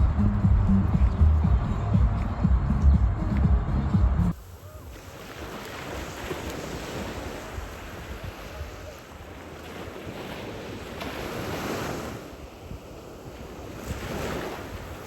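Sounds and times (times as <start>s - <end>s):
waves washing onto beach: 4.3s - 15.0s.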